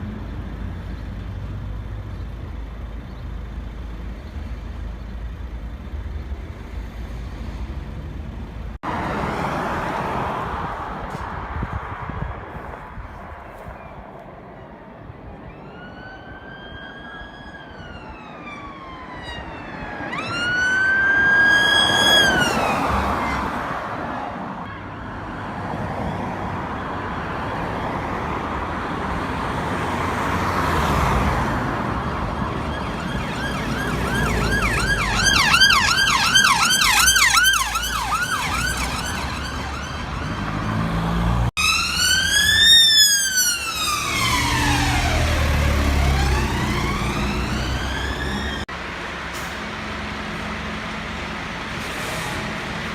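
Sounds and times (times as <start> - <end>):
traffic rumble: 0.0 - 52.9
emergency vehicle siren: 14.6 - 28.8, 29.4 - 48.8.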